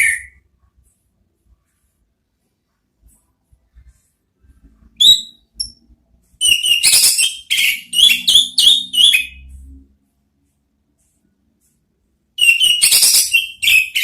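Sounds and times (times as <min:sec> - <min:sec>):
bird whistled song: 0:00.0 - 0:00.4, 0:05.0 - 0:05.8, 0:06.4 - 0:09.5, 0:12.4 - 0:14.0.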